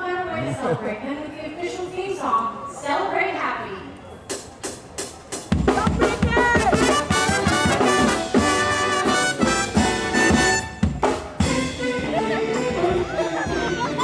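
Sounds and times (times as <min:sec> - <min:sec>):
brass band playing: 0:05.7 - 0:14.0.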